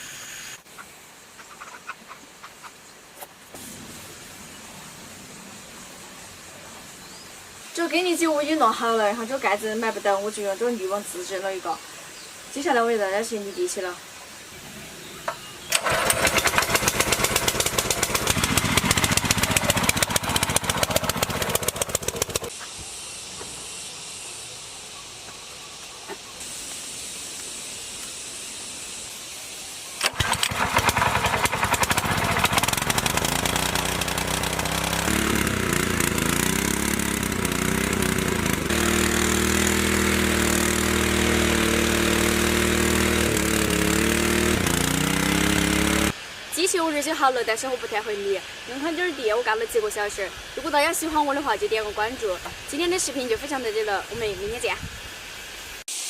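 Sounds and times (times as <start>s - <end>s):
small tiller engine running: 15.7s - 22.5s, 30.0s - 46.2s.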